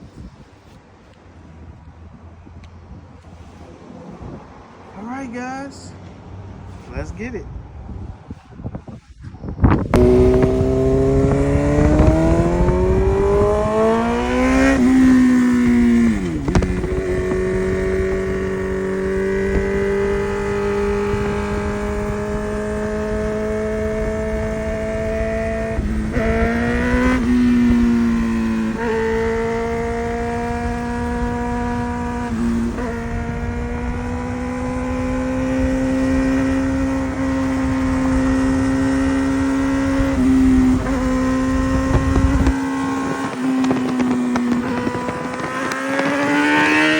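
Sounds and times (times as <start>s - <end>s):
sportbike engine revving: 9.7s - 46.9s.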